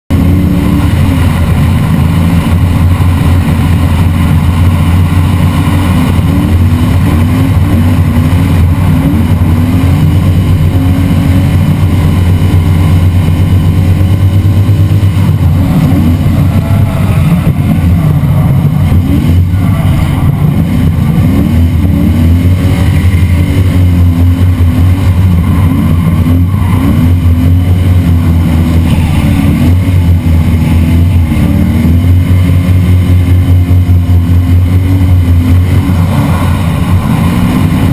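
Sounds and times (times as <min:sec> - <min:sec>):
car engine revving hard: 0:00.1 - 0:37.9.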